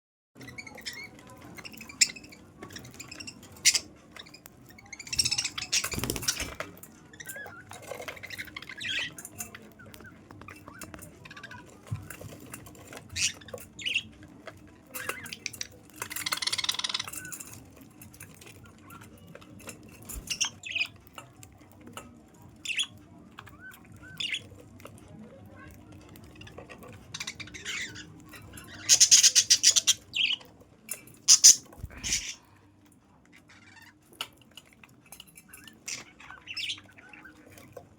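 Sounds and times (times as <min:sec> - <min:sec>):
parrot squawks and chirps: 0:00.4 - 0:03.9, 0:16.2 - 0:17.4, 0:27.2 - 0:30.4, 0:31.3 - 0:32.4.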